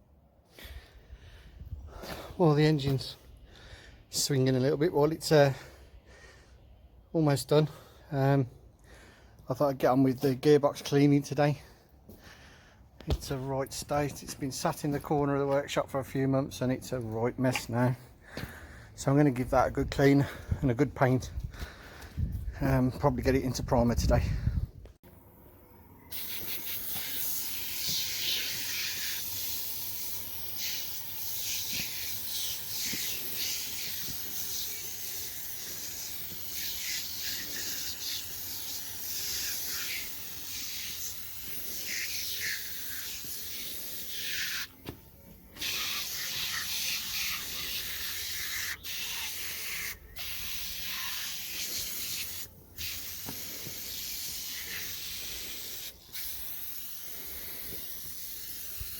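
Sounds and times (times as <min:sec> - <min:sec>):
sprayer hissing: 0:26.1 - 0:58.9.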